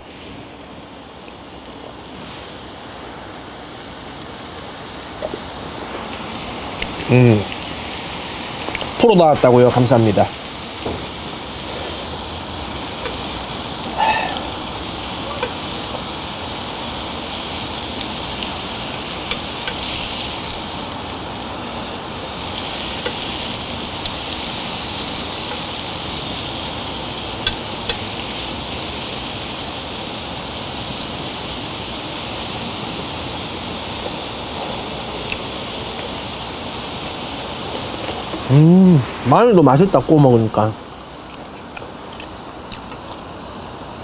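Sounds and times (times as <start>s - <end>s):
meat sizzling on a grill pan: 0.0s - 44.0s
utensils clicking against pan: 19.2s - 20.6s, 22.6s - 26.1s, 27.4s - 28.3s.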